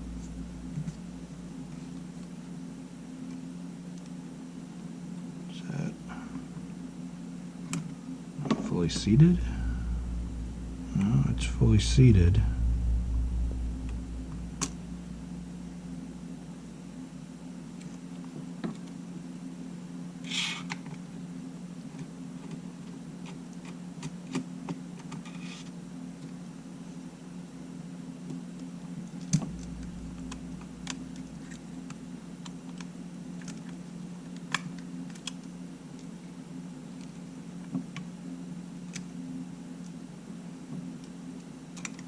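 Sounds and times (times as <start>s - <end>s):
steady low hum: 0.0s - 20.2s, 28.0s - 35.8s.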